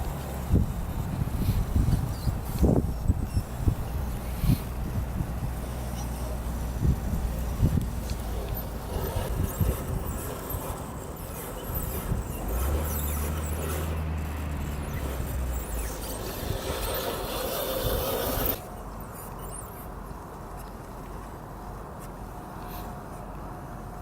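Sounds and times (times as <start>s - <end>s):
drivetrain hum: 0.0s - 19.1s
tyres scraping over forest ground: 0.0s - 21.4s.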